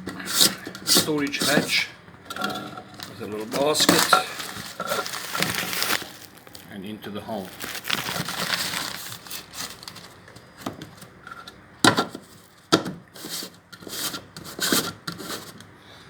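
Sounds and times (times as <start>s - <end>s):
hatch and basket rustling: 3.0s - 11.0s.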